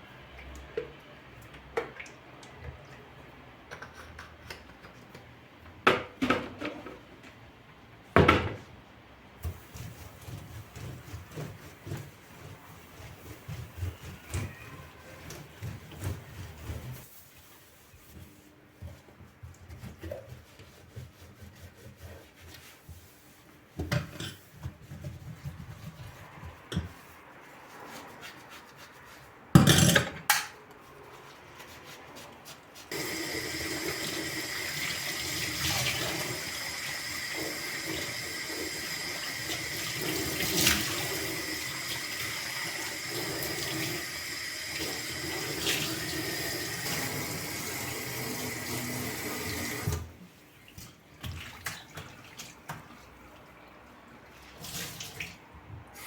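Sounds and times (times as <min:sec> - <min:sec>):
tap water running into sink: 0:32.9 - 0:50.1.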